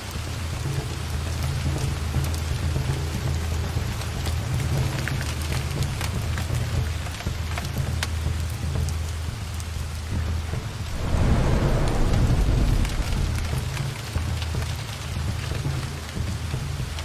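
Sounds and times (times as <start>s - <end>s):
rain on foliage: 0.0s - 17.0s
low roll of thunder: 10.8s - 14.2s.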